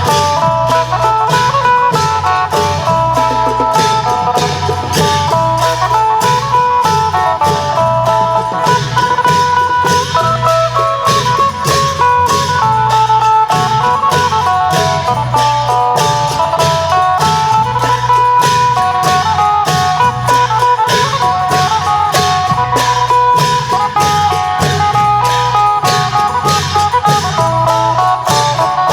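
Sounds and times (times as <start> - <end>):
long drums and percussion: 0.0 - 28.9
plucked lute melody: 0.0 - 28.9.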